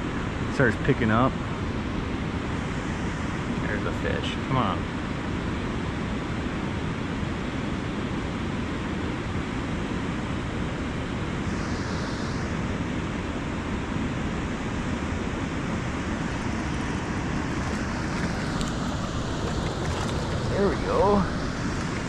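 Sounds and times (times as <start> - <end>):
flowing river water: 14.2 - 22.0
wind on microphone: 14.3 - 22.0.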